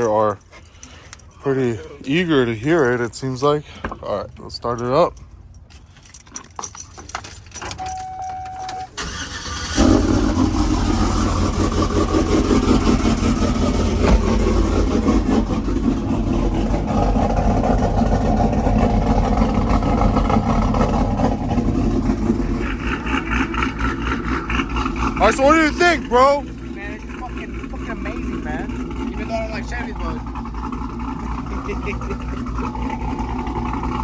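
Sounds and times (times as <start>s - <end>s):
truck engine choppy idle: 8.9s - 34.0s.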